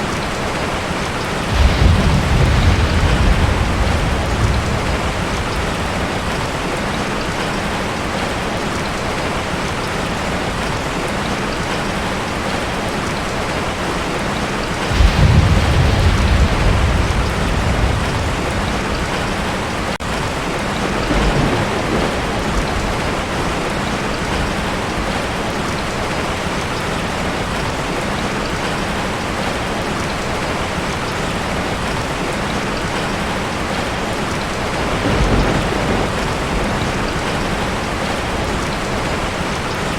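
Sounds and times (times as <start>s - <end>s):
heavy rain on a tin roof: 0.0s - 39.9s
thunder rumbling: 0.2s - 9.0s, 14.4s - 26.7s, 33.7s - 39.9s.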